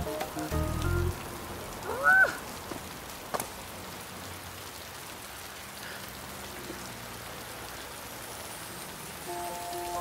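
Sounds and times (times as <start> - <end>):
steady rain on the ground: 0.0 - 10.0.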